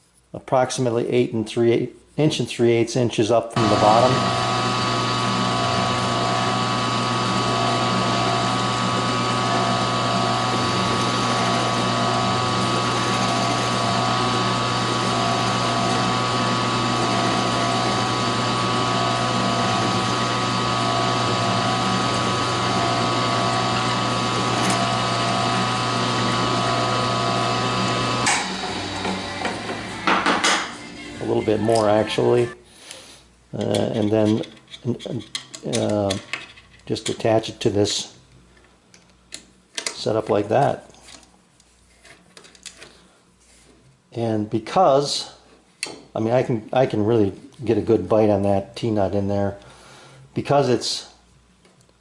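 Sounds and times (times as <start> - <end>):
electric drill drilling wood: 3.6 - 32.6
knocks: 28.3 - 30.7.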